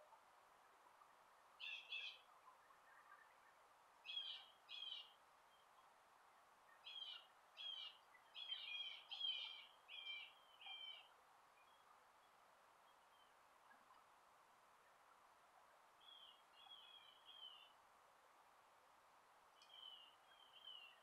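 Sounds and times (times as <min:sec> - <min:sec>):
faint outdoor background noise: 0:00.0 - 0:21.0
bird calling faintly: 0:01.6 - 0:05.8, 0:06.7 - 0:14.2, 0:16.0 - 0:17.8, 0:19.5 - 0:21.0.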